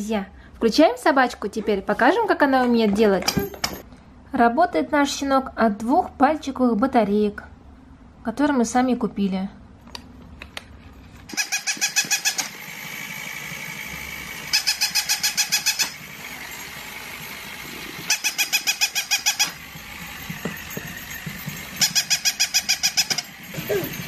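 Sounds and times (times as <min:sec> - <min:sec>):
toy dog electronic barks: 0:11.3 - 0:12.6, 0:14.5 - 0:16.1, 0:18.1 - 0:19.7, 0:21.8 - 0:24.0.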